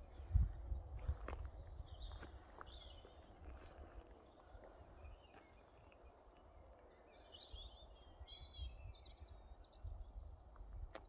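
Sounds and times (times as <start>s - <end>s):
birds chirping and warbling: 0.0s - 10.6s.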